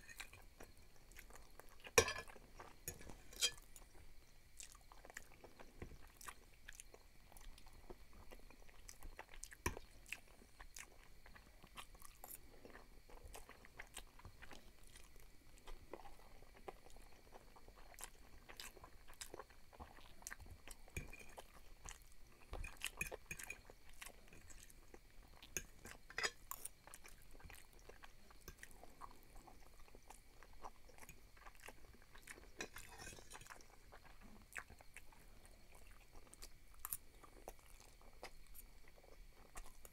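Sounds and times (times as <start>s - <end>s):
chewing pasta: 0.0s - 39.9s
fork clinking on glass plate: 2.0s - 2.3s, 2.9s - 3.6s.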